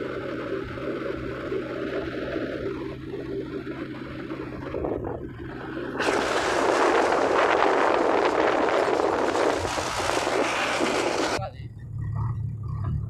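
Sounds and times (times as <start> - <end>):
tractor engine humming: 0.0 - 13.0
loud rushing noise: 5.5 - 11.4.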